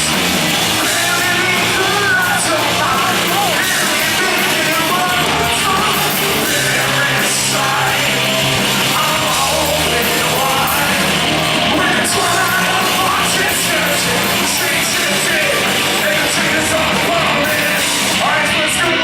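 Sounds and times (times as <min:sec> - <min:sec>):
bass guitar: 0:00.0 - 0:19.0
distorted electric guitars: 0:00.0 - 0:19.0
drums: 0:00.0 - 0:19.0
heavy rock band playing live: 0:00.0 - 0:19.0.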